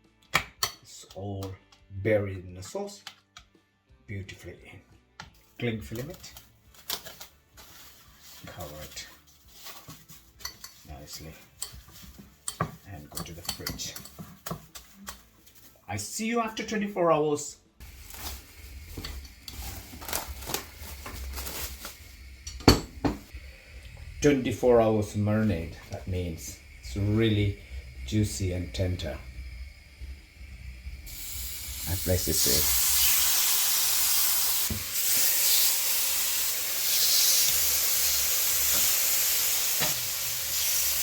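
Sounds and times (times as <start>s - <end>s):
kitchen utensils clinking: 10.4s - 14.5s, 22.4s - 23.3s
meat sizzling on a skillet: 17.8s - 41.0s.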